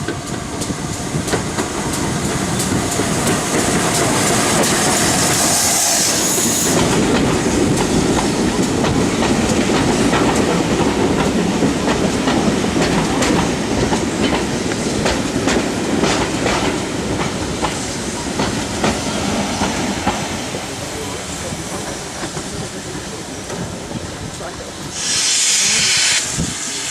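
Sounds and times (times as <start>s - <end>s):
train wheels clicking on rails: 0.0s - 26.9s
high hiss: 24.9s - 26.9s.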